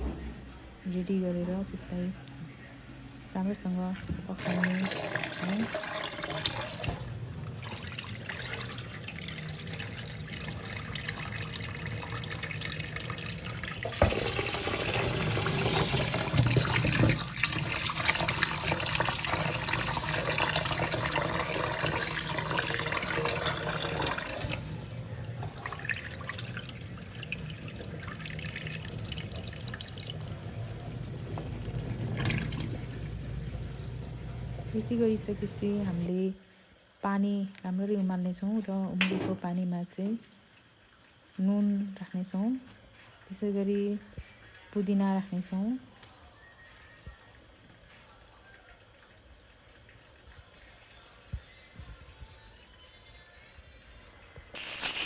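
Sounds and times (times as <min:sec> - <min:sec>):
knock: 0:00.0 - 0:00.4
tap water running into sink: 0:04.3 - 0:24.7, 0:25.3 - 0:34.7.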